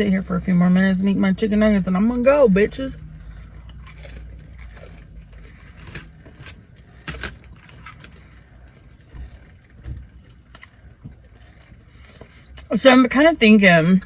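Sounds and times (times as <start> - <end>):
steady low rumble: 0.0 - 14.0
chewing crunches and clicks: 3.0 - 12.7.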